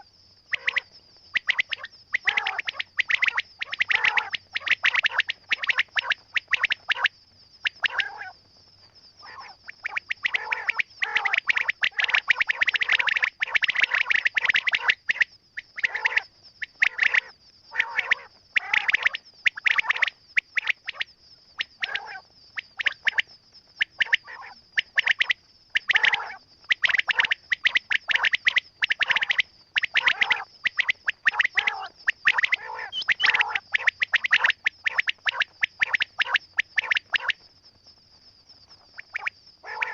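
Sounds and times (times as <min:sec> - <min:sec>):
quail calling: 0:00.0 - 0:07.1, 0:07.7 - 0:08.3, 0:09.2 - 0:19.1, 0:23.9 - 0:37.3, 0:39.6 - 0:39.9.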